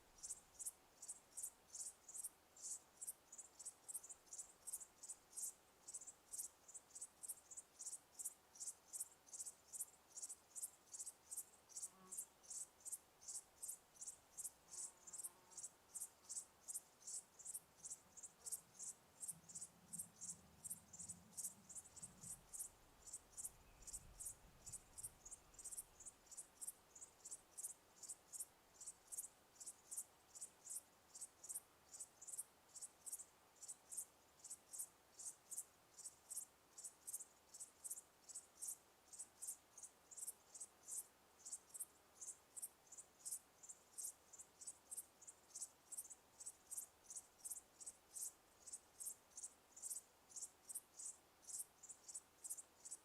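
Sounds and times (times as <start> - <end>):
insects chirping: 0.0 - 53.0.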